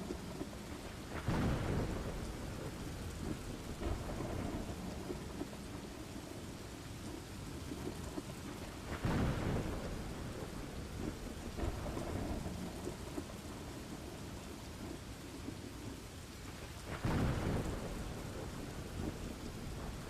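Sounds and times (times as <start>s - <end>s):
steady rain: 0.0s - 20.0s
thunder rolling: 1.1s - 5.5s, 8.8s - 13.9s, 16.9s - 20.0s.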